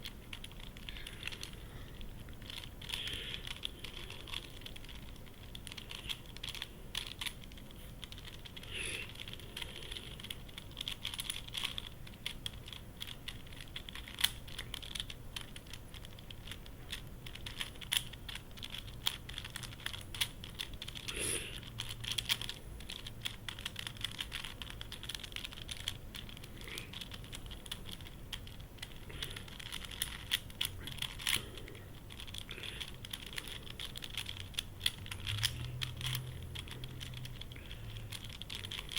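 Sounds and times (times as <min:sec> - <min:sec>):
plastic puzzle clicking: 0:00.0 - 0:38.9.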